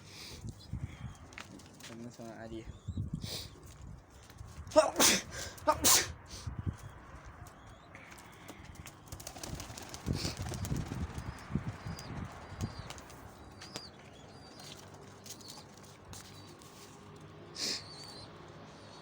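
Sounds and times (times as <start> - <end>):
pigeon wings flapping: 8.8 - 13.8.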